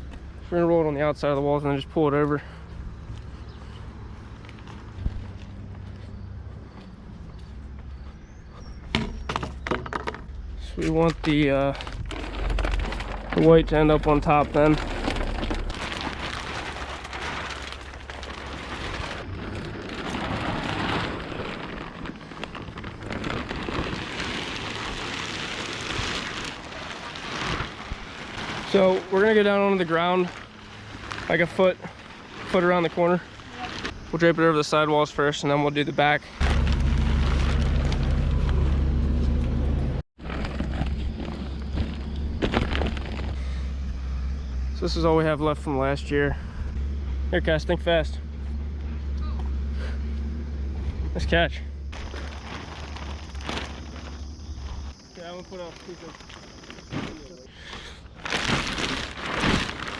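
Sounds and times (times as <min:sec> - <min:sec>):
engine humming: 0:00.0 - 0:35.3, 0:36.0 - 0:59.9
plastic sheet rustling and crackling: 0:09.1 - 0:34.8, 0:36.4 - 0:39.3, 0:40.2 - 0:43.9, 0:50.8 - 0:59.9.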